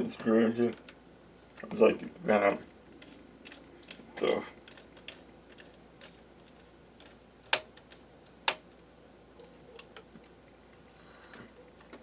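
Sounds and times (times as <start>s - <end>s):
sharp plastic clicks: 7.0s - 8.7s.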